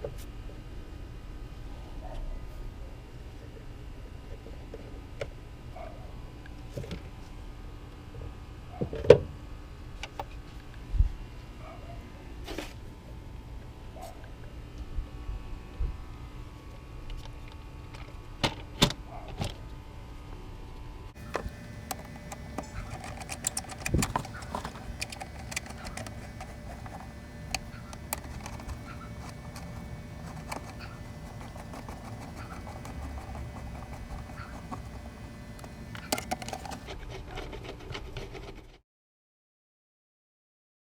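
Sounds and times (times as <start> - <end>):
low steady hum: 21.2 - 36.9
tools and parts rattling: 21.2 - 36.9.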